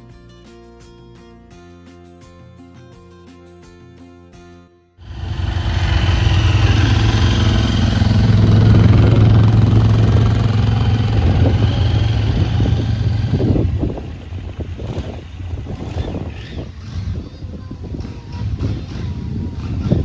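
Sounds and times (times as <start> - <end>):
music: 0.0 - 5.0, 17.0 - 20.0
loud rushing noise: 5.0 - 16.7
motorcycle engine running: 5.0 - 20.0.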